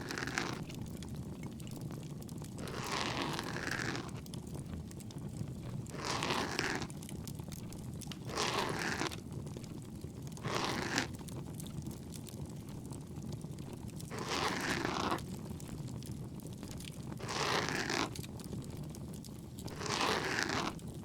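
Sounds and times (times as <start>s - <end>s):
ear pick scraping inside ear: 0.0s - 0.8s, 2.6s - 4.2s, 5.9s - 6.9s, 8.2s - 9.2s, 10.4s - 11.2s, 14.1s - 15.2s, 17.2s - 18.2s, 19.6s - 20.8s
bonfire crackling: 0.6s - 2.6s, 4.0s - 6.0s, 6.8s - 8.3s, 9.0s - 10.4s, 11.1s - 14.2s, 15.1s - 17.2s, 17.9s - 19.7s, 20.5s - 21.0s.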